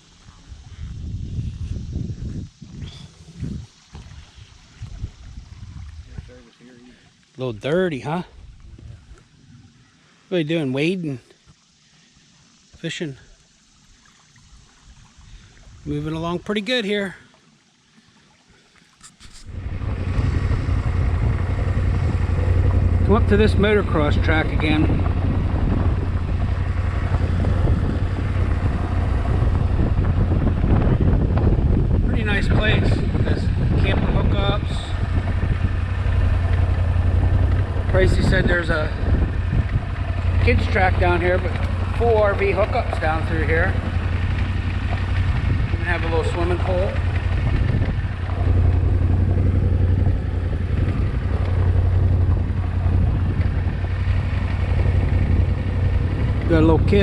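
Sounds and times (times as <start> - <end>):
wind buffeting microphone: 0.0 - 6.5, 7.6 - 9.8, 19.3 - 57.0
motorcycle engine droning: 19.4 - 57.0.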